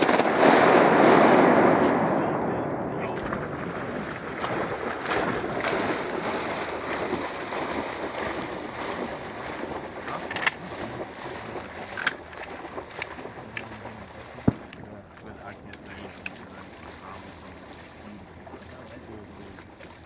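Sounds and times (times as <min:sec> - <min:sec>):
water sloshing and splashing: 0:03.1 - 0:20.0.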